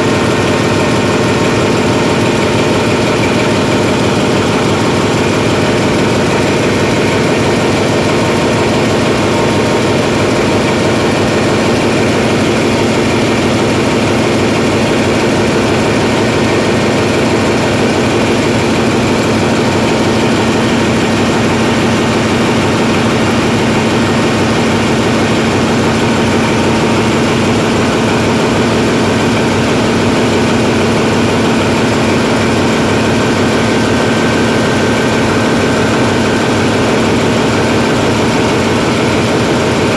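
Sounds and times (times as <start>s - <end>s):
diesel generator engine running: 0.0s - 39.9s.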